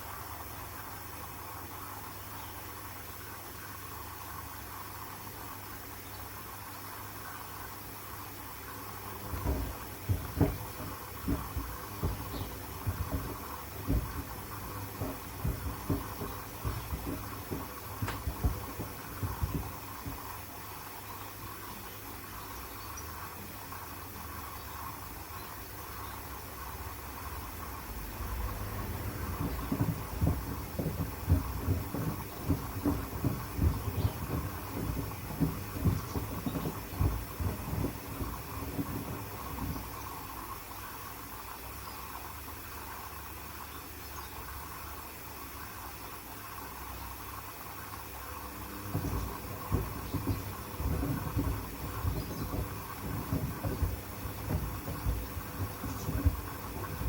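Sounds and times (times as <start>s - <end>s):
steady hiss: 0.0s - 57.0s
washing machine hum: 0.0s - 57.0s
wood thumping in washing machine drum: 8.9s - 22.3s, 27.9s - 40.6s, 48.4s - 57.0s.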